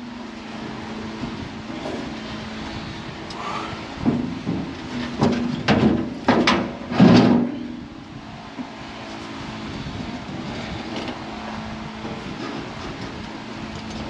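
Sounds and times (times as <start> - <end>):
steady low hum: 0.0 - 14.0
metal plates scraping and clanking: 4.0 - 7.8.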